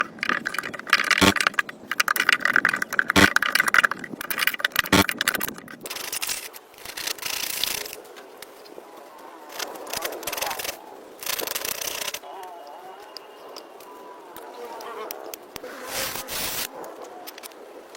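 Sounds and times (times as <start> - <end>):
rapid scraping strokes: 0.0 - 8.0.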